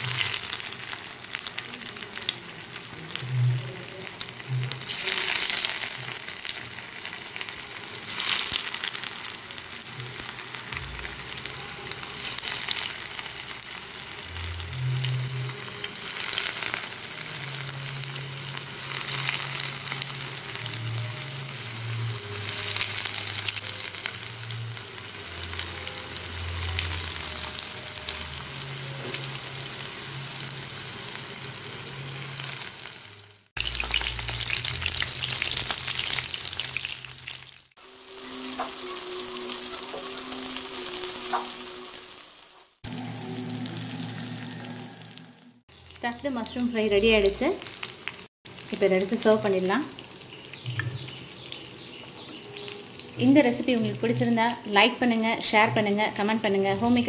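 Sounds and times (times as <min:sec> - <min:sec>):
food sizzling in hot oil: 0:00.0 - 0:57.0.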